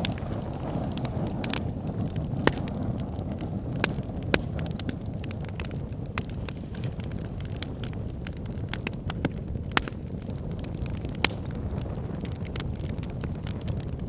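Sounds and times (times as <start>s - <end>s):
burning wood crackling and popping: 0.0s - 14.0s
low roar of flames: 0.0s - 14.0s.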